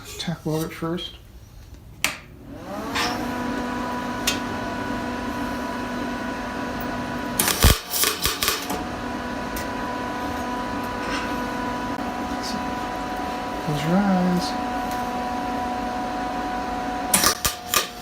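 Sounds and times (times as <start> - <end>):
welder humming: 2.4 - 18.0
sharp crackling of welding: 7.2 - 8.8, 17.1 - 18.0.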